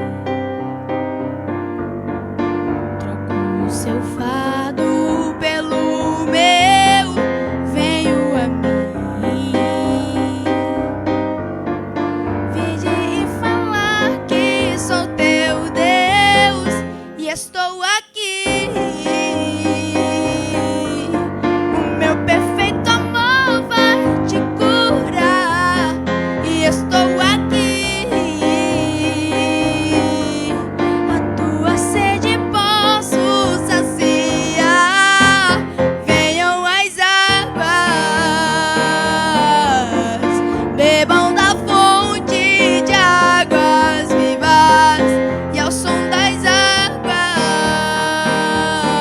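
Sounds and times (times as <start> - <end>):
piano and keyboard chords: 0.0 - 17.6, 18.4 - 49.0
person singing: 3.0 - 11.2, 12.5 - 49.0.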